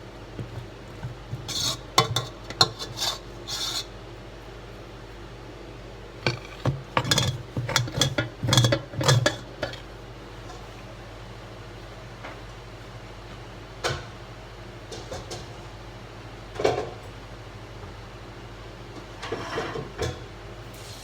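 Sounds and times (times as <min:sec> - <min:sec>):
utensil scraping a cooking pot: 0:00.4 - 0:04.0, 0:06.2 - 0:09.9.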